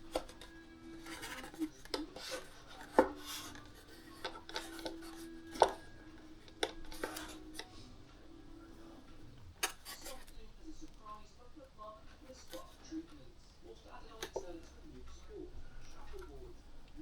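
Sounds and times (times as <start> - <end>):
hands rustling and scraping: 0.0 - 8.0.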